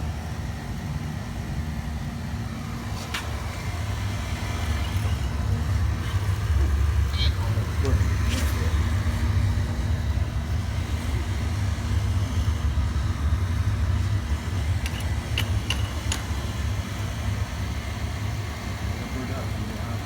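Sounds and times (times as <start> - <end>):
boiler burner rumbling: 0.0 - 20.0.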